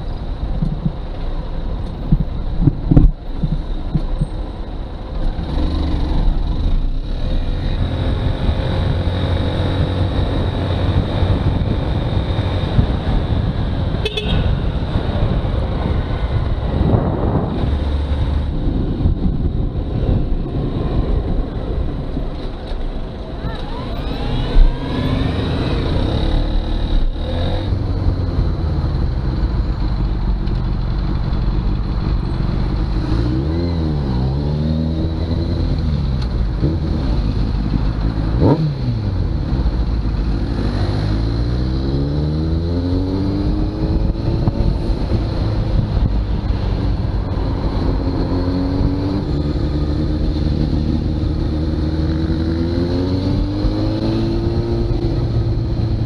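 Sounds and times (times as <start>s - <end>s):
wind and road noise: 0.0s - 56.0s
motorcycle engine accelerating: 24.1s - 56.0s.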